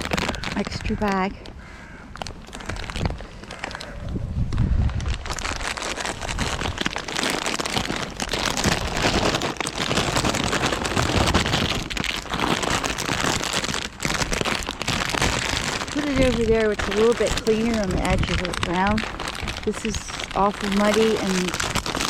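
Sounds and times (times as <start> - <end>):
plastic bag rustling: 0.0 - 22.0.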